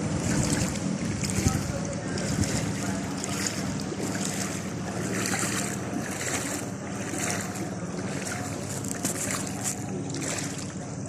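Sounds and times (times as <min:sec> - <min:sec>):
wind noise on microphone: 0:00.0 - 0:06.0
motor running steadily: 0:00.0 - 0:11.0
rushing water: 0:00.0 - 0:11.0.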